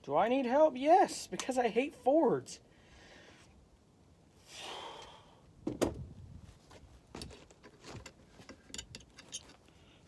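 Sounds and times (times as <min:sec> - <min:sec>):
man exhaling heavily: 0:04.4 - 0:05.4
small clicks of parts handled: 0:07.2 - 0:09.7.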